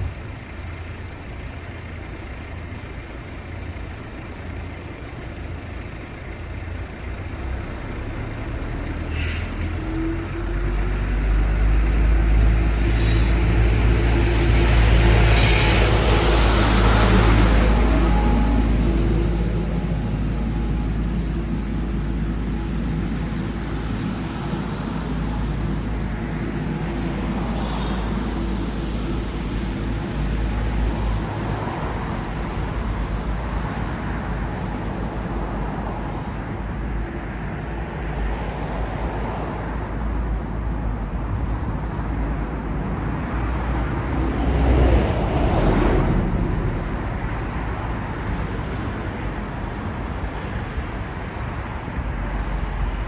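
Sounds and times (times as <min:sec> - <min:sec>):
passing cars rumble: 0:00.0 - 0:53.0
loud vehicle passing: 0:07.8 - 0:36.2.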